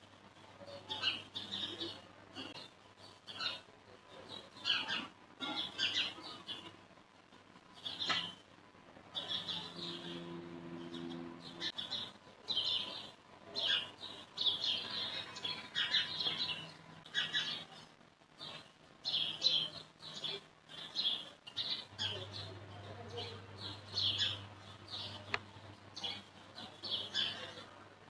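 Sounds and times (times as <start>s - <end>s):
faint low hum: 0.0s - 28.0s
small birds chirping: 0.0s - 28.0s.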